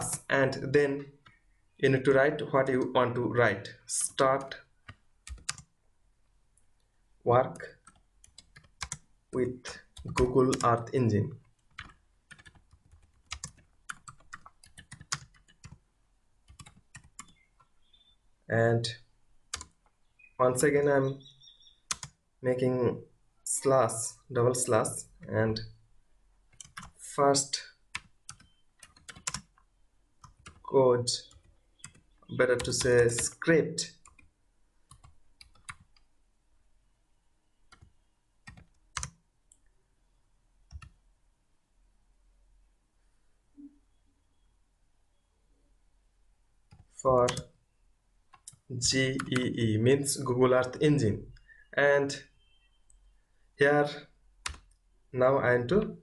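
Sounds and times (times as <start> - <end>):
typing on computer keyboard: 4.4 - 5.7, 7.8 - 9.1, 10.0 - 10.7, 11.5 - 15.8, 16.5 - 17.7, 19.5 - 19.8, 21.9 - 22.2, 26.5 - 27.0, 28.0 - 30.6, 31.3 - 32.1, 34.0 - 34.3, 34.9 - 36.0, 38.5 - 39.2, 46.7 - 47.5, 54.4 - 54.8.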